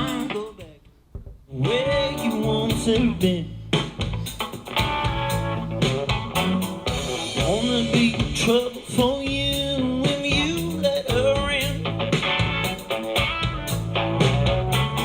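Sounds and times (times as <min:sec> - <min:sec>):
blues-rock song with slide guitar: 0:00.0 - 0:00.6, 0:01.7 - 0:15.0
person singing: 0:00.0 - 0:00.7, 0:01.5 - 0:03.5, 0:07.3 - 0:11.8.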